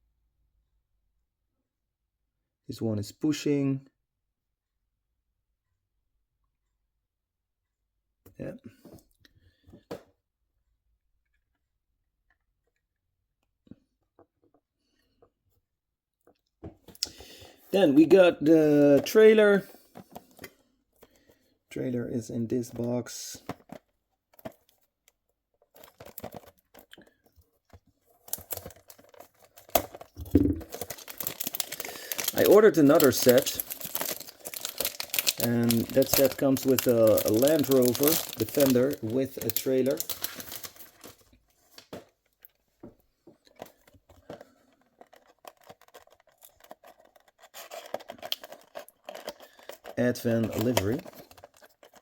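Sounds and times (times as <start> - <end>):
packaging rustling and tearing: 25.6 - 41.8, 43.5 - 52.0
packaging clicks and taps: 25.7 - 41.1, 43.5 - 52.0.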